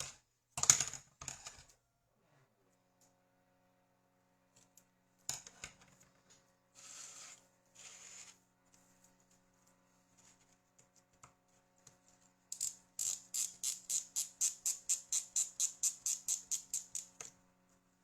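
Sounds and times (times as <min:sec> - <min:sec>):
hand mechanism scraping clicks: 0:12.5 - 0:17.2.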